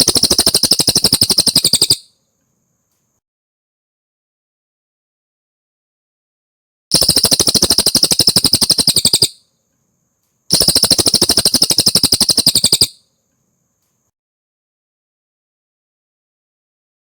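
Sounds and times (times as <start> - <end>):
bird singing rapid trills: 0.0 - 2.2, 6.9 - 9.5, 10.5 - 13.1.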